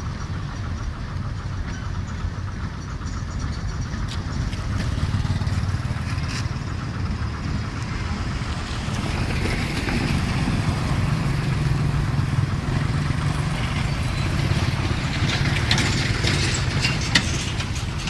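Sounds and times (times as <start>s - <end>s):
truck engine rumbling: 0.0s - 18.0s
clicks and rattles: 13.4s - 18.0s.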